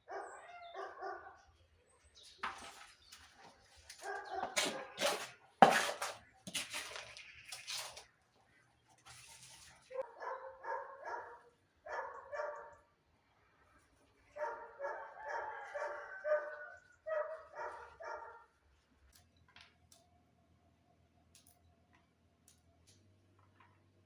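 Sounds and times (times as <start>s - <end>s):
dog barking: 0.0s - 1.5s, 4.0s - 5.0s, 9.9s - 12.9s, 14.3s - 18.5s.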